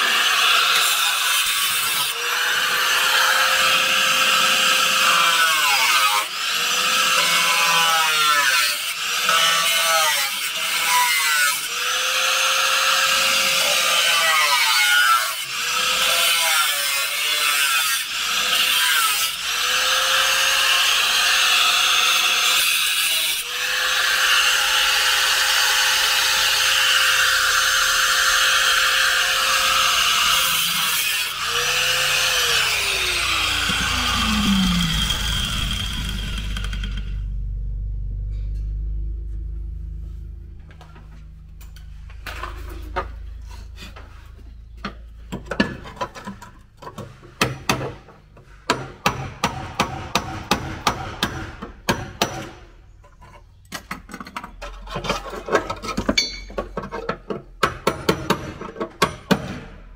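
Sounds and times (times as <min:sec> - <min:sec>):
angle grinder cutting steel: 0:00.0 - 0:37.4.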